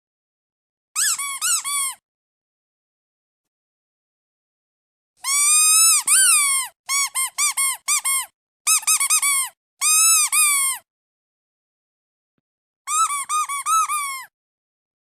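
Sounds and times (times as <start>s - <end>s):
squeaky duck toy squeaking: 1.0s - 2.0s, 5.2s - 10.9s, 12.9s - 14.3s.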